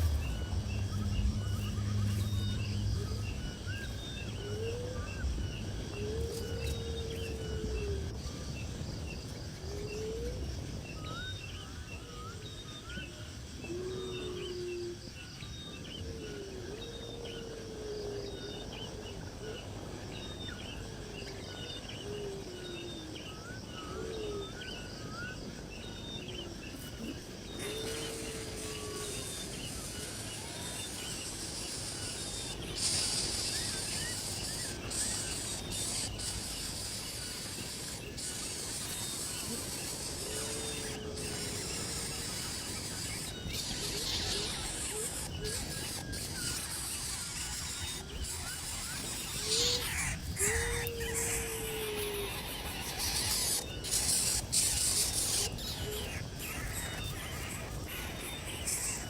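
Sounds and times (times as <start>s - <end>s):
steady low rumble: 0.0s - 11.9s
birds chirping: 0.0s - 59.0s
outdoor background noise: 0.0s - 59.0s.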